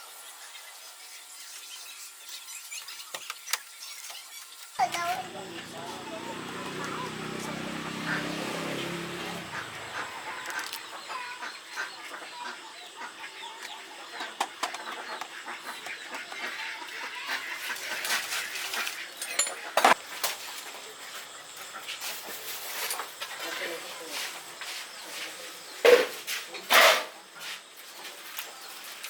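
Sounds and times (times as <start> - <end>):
chickens clucking: 4.8 - 22.7.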